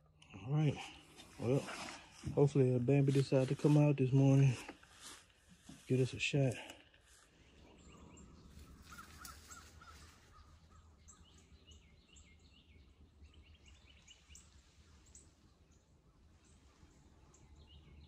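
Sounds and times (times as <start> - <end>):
high bird chirps: 7.5 - 18.0.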